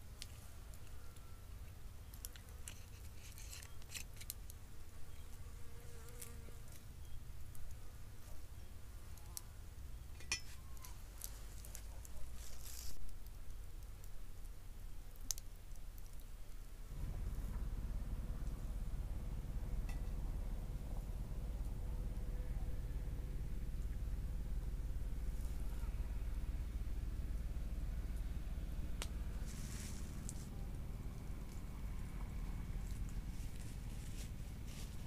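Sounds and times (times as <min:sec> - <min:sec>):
fly buzzing: 0:05.1 - 0:06.8
short rustle: 0:10.4 - 0:13.2, 0:29.4 - 0:30.5, 0:33.3 - 0:35.0
low rumble: 0:16.9 - 0:35.0.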